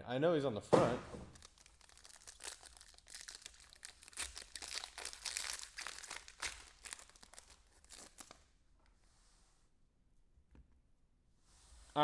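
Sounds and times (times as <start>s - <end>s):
plastic packaging crinkling: 1.3s - 8.5s.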